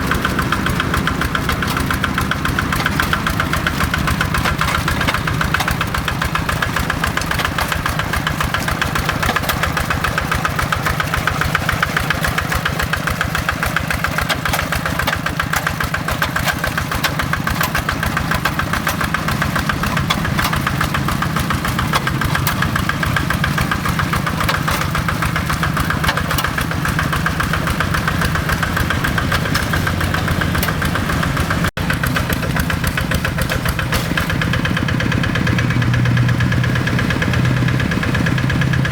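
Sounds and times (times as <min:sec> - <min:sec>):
diesel engine knocking: 0:00.0 - 0:38.9.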